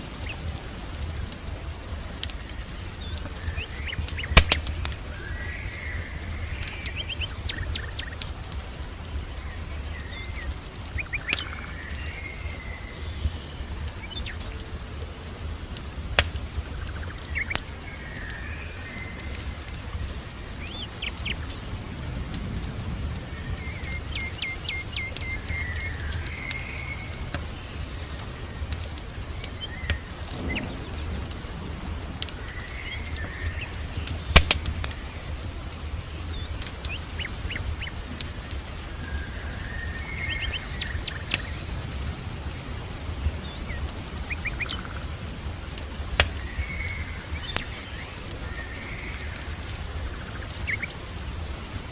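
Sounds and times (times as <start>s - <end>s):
steady low rumble: 0.0s - 48.6s
fireplace fire crackling: 0.0s - 51.9s
small birds chirping: 0.0s - 51.9s.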